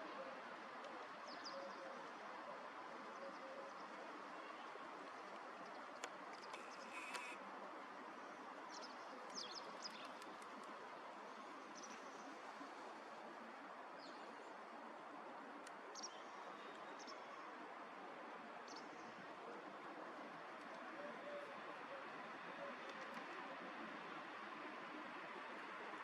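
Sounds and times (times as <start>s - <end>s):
steady background hiss: 6.2s - 26.0s
small birds chirping: 6.4s - 7.4s.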